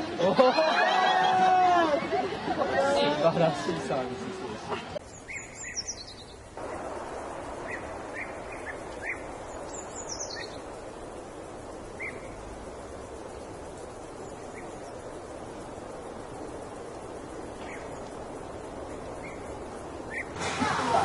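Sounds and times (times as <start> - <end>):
steady background hiss: 0.0 - 21.0
bird trills sliding downward: 5.1 - 21.0.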